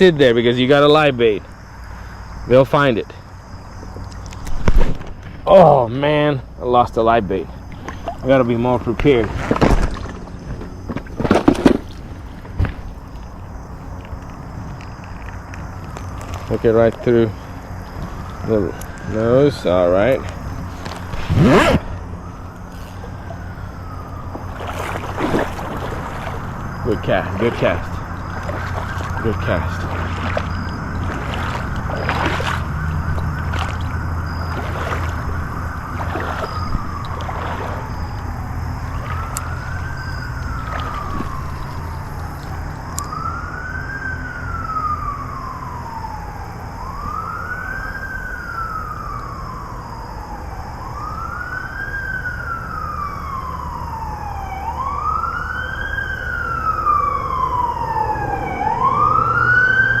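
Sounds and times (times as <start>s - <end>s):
emergency siren wailing: 15.7s - 60.0s.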